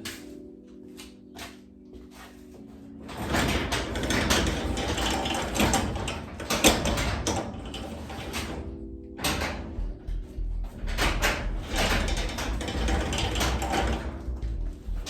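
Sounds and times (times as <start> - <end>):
garage door opener running: 3.0 - 15.0.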